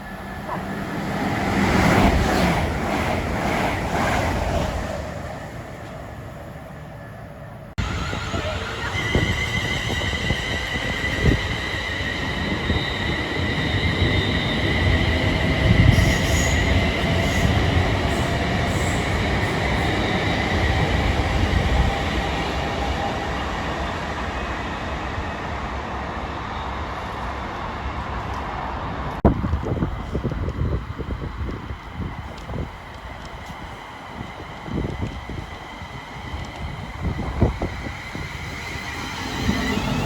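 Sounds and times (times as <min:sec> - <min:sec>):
train passing: 0:00.0 - 0:40.0
high-pitched wheel squeal: 0:07.8 - 0:14.6.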